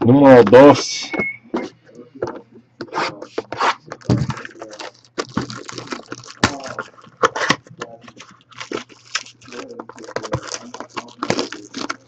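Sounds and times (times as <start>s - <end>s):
card packaging rustling: 2.8s - 12.0s.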